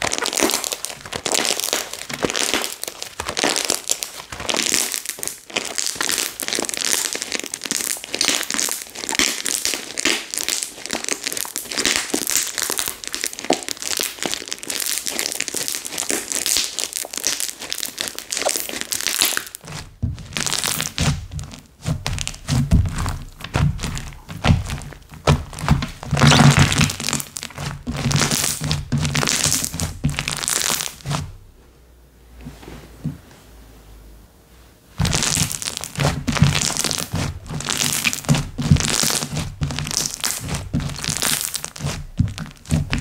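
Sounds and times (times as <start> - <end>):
slime crackling when squeezed: 0.0 - 31.3, 35.0 - 43.0
slime thuds and squelches: 0.0 - 31.6, 35.0 - 43.0.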